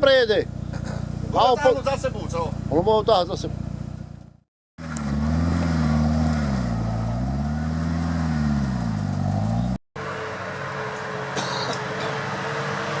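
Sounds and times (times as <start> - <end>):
steady engine hum: 0.0 - 13.0
engine revving: 4.8 - 13.0.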